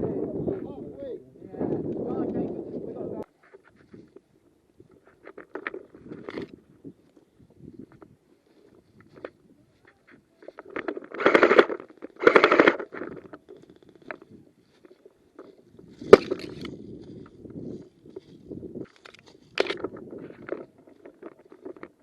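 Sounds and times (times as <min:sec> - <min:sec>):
sharp crack: 0:10.8 - 0:13.1.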